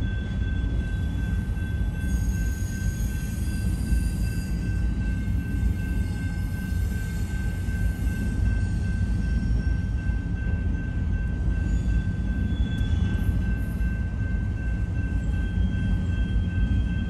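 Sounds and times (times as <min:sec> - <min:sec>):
railcars rumbling: 0:00.0 - 0:17.0.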